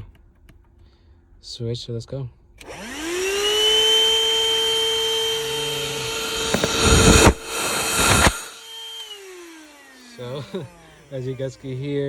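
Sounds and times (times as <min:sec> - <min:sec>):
handheld vacuum whine: 0:02.6 - 0:12.0.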